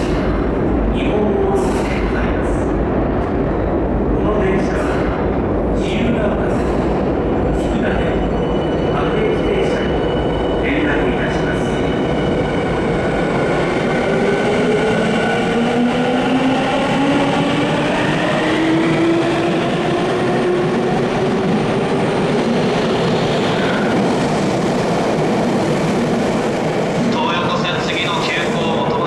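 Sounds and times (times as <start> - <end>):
wheels rumbling on rail: 0.0 - 10.6.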